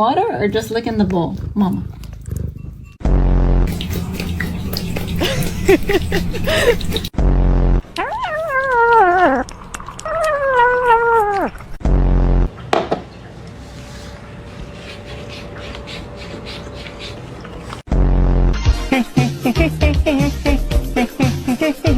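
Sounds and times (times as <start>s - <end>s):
cat meowing: 7.9s - 11.8s.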